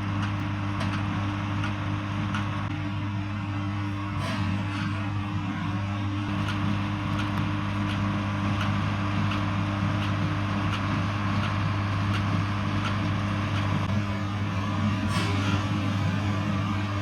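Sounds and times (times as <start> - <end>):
tractor diesel engine running: 0.0 - 17.0
baler machinery clacking: 4.0 - 17.0.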